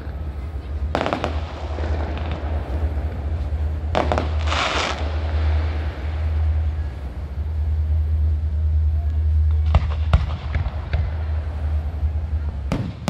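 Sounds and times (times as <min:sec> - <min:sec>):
firework crackle: 0:00.0 - 0:13.0
steady low rumble: 0:00.0 - 0:13.0
firework bang: 0:00.9 - 0:06.5, 0:09.5 - 0:11.5, 0:12.7 - 0:13.0.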